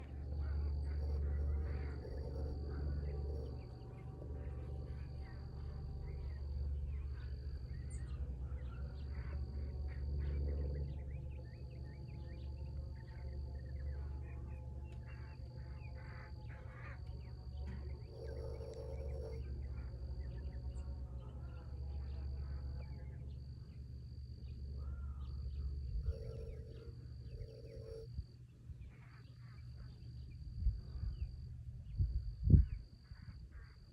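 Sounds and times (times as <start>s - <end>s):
steady low rumble: 0.0s - 33.9s
insect buzzing trill: 18.1s - 19.8s, 25.6s - 28.1s.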